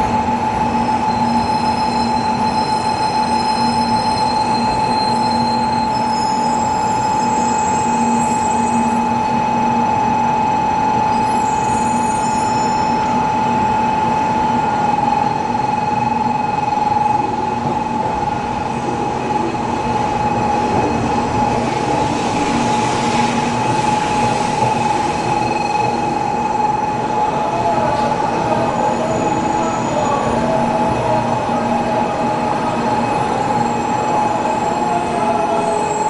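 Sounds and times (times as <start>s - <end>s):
high-pitched train whine: 0.0s - 36.0s
rail noise: 0.0s - 36.0s.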